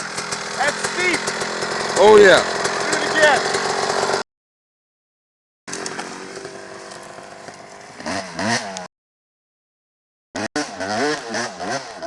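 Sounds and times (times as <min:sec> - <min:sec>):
dirt bike engine revving: 0:00.0 - 0:04.2, 0:05.7 - 0:08.9, 0:10.4 - 0:12.0.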